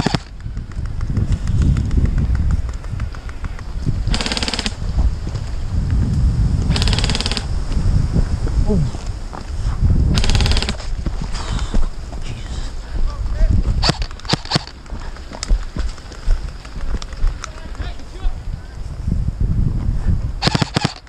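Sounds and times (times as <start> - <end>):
airsoft gun full-auto bursts: 0.0 - 0.4, 4.1 - 4.8, 6.7 - 7.5, 10.1 - 10.9, 13.8 - 14.8, 20.4 - 21.0.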